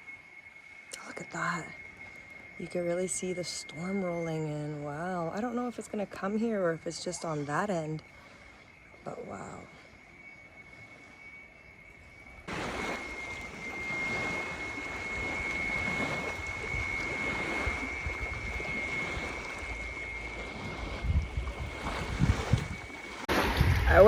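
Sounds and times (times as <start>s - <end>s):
small waves washing: 0.0s - 24.0s
thin high whine: 0.0s - 24.0s
wind on microphone: 11.8s - 24.0s.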